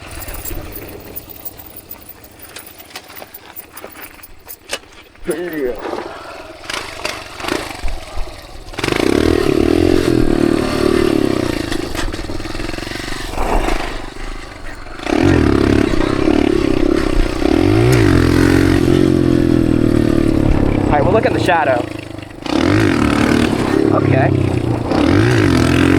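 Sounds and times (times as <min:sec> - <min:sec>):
dirt bike engine revving: 0:15.0 - 0:25.9.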